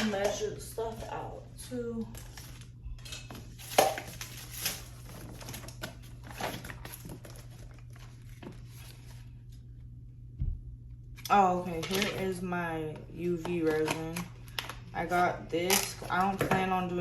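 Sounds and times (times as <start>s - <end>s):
plastic packaging crinkling: 2.1s - 9.6s, 13.6s - 16.6s
plastic cups clattering: 3.2s - 4.3s, 13.4s - 17.0s.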